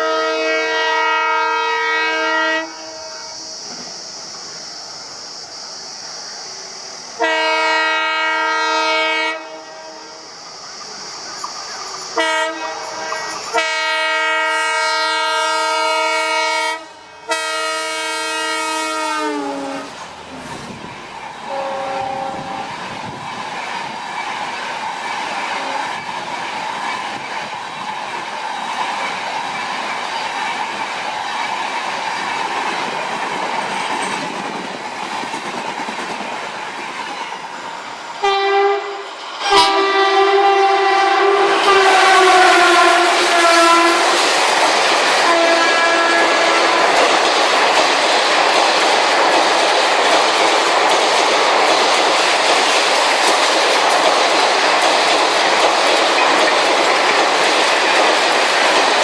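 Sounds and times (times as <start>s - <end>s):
train horn blasts: 0.0s - 3.4s, 7.2s - 10.2s, 12.2s - 20.0s, 21.4s - 22.8s, 38.2s - 44.2s, 45.2s - 47.1s
train running on track: 0.0s - 59.0s.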